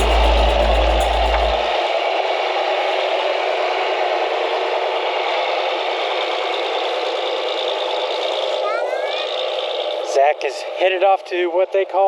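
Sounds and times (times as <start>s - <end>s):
machine rattling: 0.0s - 1.7s.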